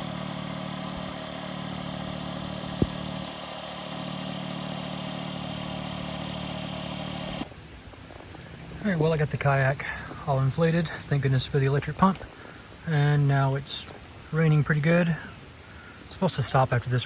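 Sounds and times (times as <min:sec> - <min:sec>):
electric air pump humming: 0:00.0 - 0:13.2.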